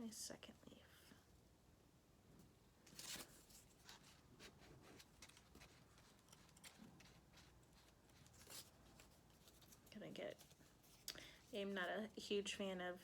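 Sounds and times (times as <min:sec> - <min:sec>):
paper rustling: 0:02.9 - 0:11.1.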